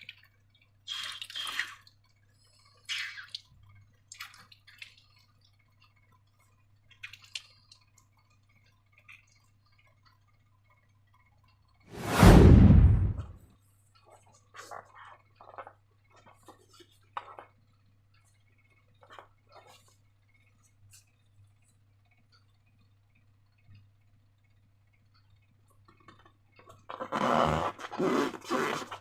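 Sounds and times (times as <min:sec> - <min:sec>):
low hum: 0:12.0 - 0:13.4.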